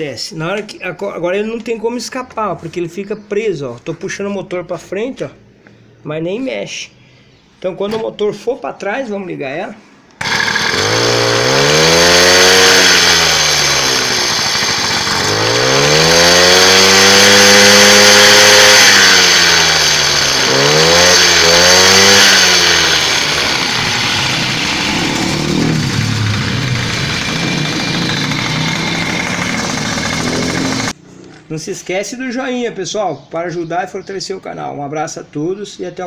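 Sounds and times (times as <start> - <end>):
small engine revving: 10.2 - 31.0.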